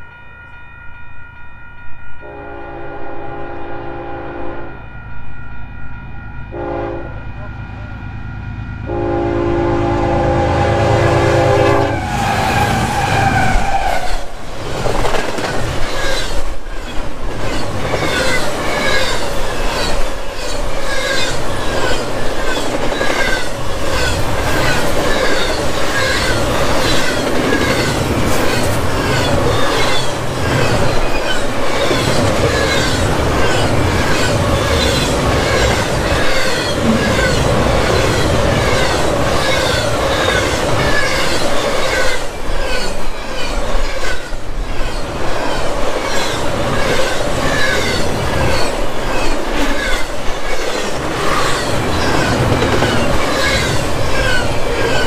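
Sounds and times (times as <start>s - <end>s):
train horn: 2.2s - 5.1s, 6.5s - 14.3s
train wheels clickety-clack: 12.4s - 55.0s.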